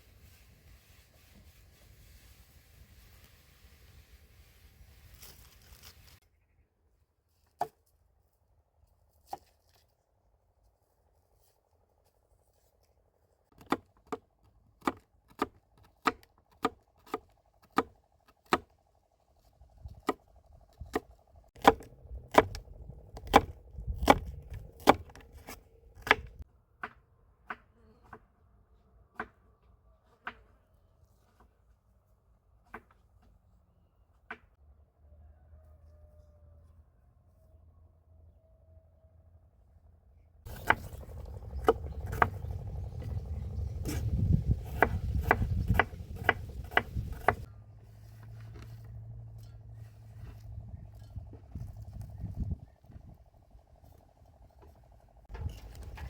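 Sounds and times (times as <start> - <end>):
knife chopping on cutting board: 44.6 - 47.4.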